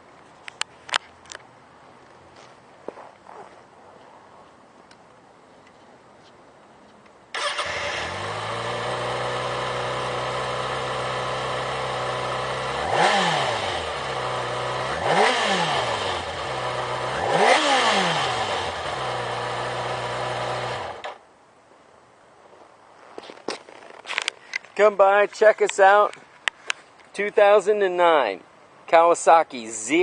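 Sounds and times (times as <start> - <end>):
motorcycle engine revving: 7.4 - 21.2.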